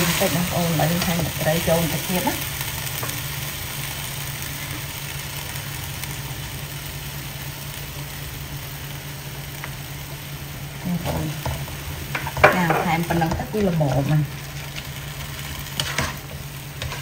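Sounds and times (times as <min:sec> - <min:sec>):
food sizzling in a wok: 0:00.0 - 0:17.0
spatula stirring in a pan: 0:10.9 - 0:17.0.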